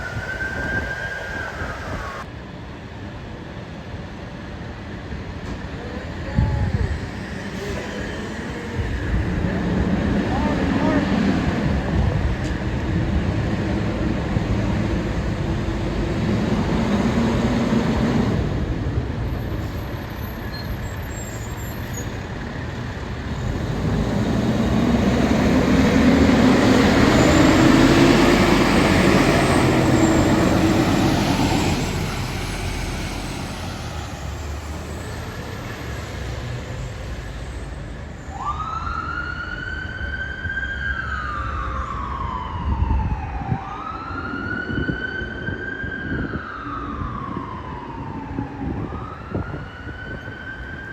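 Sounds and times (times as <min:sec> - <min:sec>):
emergency vehicle siren wailing: 0:00.0 - 0:02.3, 0:06.4 - 0:50.9
heavy vehicle engine: 0:00.0 - 0:38.4
road traffic: 0:00.0 - 0:50.9.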